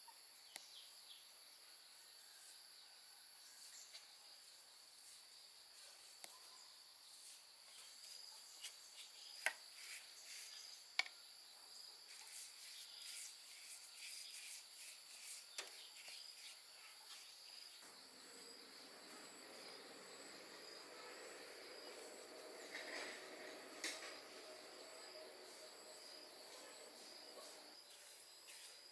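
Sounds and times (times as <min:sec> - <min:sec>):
faint insect chirring: 0:00.0 - 0:28.9
faint low hum: 0:11.2 - 0:28.8.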